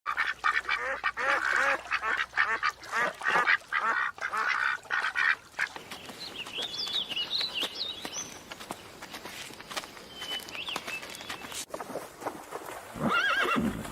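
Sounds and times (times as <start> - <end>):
ducks quacking: 0.1 - 5.8
small bird chirping: 5.8 - 11.6.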